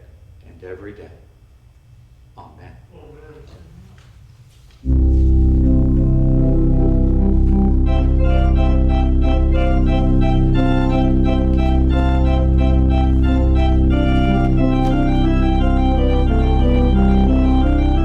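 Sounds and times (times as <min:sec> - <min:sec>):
organ music: 0:04.8 - 0:18.0.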